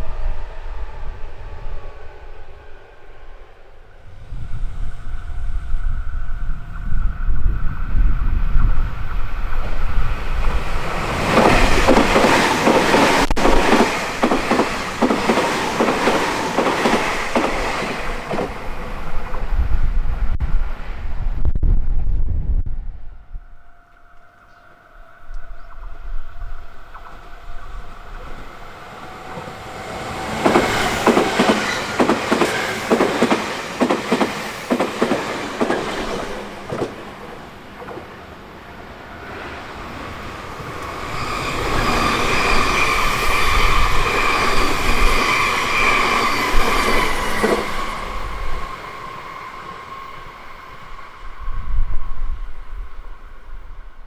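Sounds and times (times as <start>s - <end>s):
train high whine: 0.0s - 54.0s
train wheels clattering: 10.6s - 18.7s, 29.1s - 38.2s.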